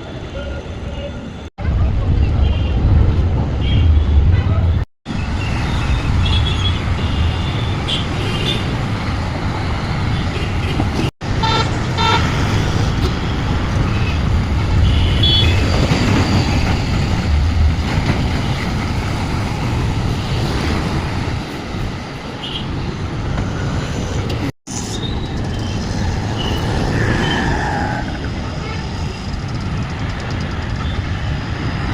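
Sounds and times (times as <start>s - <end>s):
road traffic rumble: 0.0s - 31.9s
vehicle horn toots: 14.8s - 15.6s.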